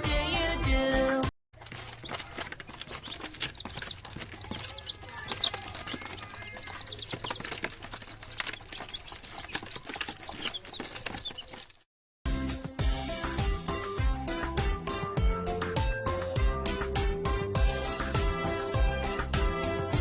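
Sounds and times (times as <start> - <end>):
poultry chirping: 1.6 - 11.9
rustling and clicks: 1.6 - 11.9.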